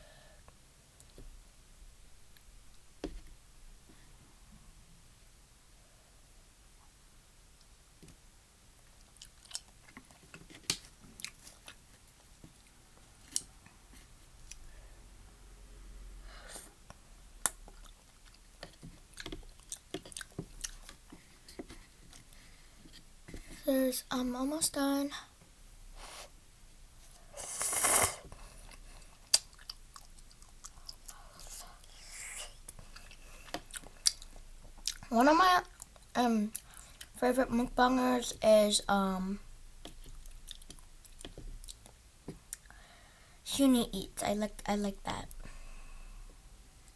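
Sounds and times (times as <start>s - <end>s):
person chewing noodles: 9.0s - 10.3s, 11.2s - 11.8s, 17.4s - 21.0s, 27.1s - 32.0s, 32.6s - 37.2s, 39.9s - 42.7s
noodle slurping: 27.4s - 28.3s.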